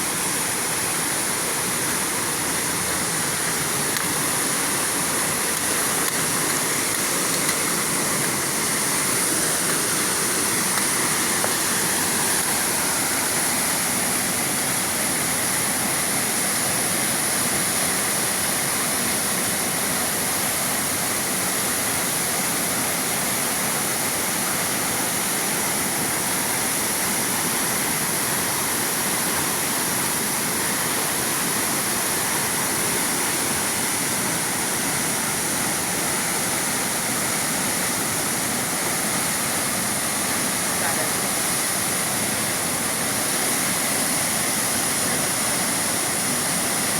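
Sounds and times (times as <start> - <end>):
high-pitched hiss: 0.0 - 46.9
waterfall rushing: 0.0 - 46.9.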